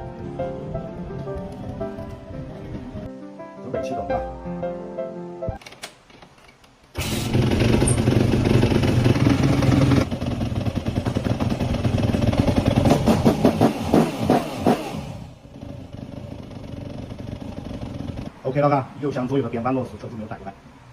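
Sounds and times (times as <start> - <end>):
dirt bike engine starting and running: 6.9 - 18.3.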